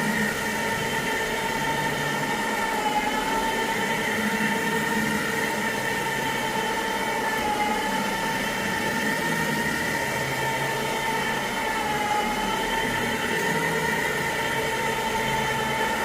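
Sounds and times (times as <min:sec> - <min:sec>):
carpet cleaning machine whine: 0:00.0 - 0:16.0.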